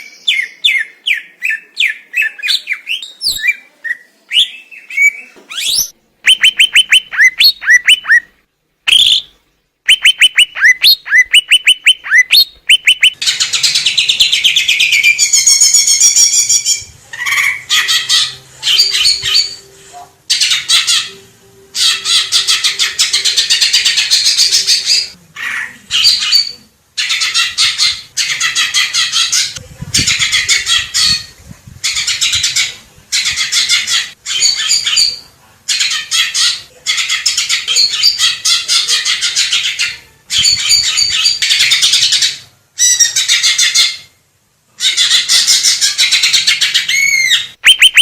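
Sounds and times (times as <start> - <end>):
bird singing whistled notes: 2.2 - 8.3, 8.9 - 9.3, 9.9 - 13.2, 47.0 - 48.0
bird chattering warble: 5.8 - 8.3, 9.9 - 13.2, 47.6 - 48.0.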